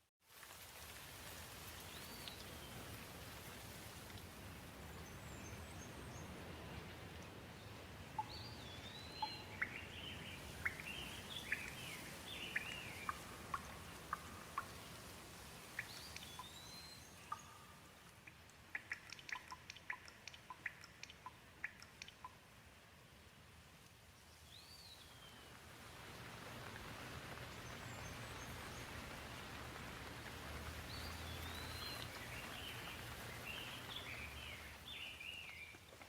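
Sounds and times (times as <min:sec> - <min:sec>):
gentle rain: 0:00.0 - 0:36.0
birds chirping: 0:08.2 - 0:14.8, 0:15.8 - 0:22.4, 0:30.7 - 0:35.8
sharp drips: 0:08.2 - 0:22.6, 0:26.0 - 0:36.0.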